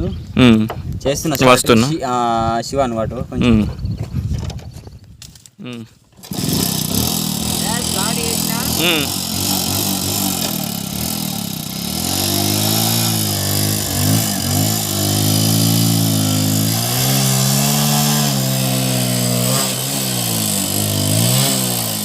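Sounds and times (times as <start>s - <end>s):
motorcycle engine revving under load: 5.7s - 22.0s.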